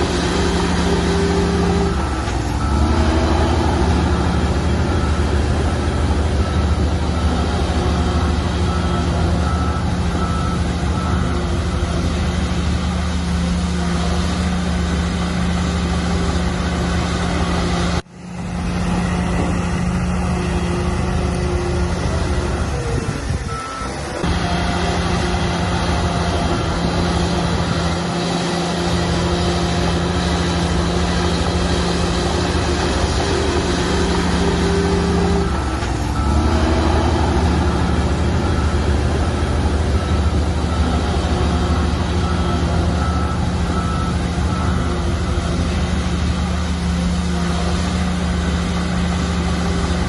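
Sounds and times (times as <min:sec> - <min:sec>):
bulldozer diesel engine droning: 0:00.0 - 0:50.0
reversing alarm beeps: 0:00.3 - 0:12.6, 0:23.5 - 0:45.7.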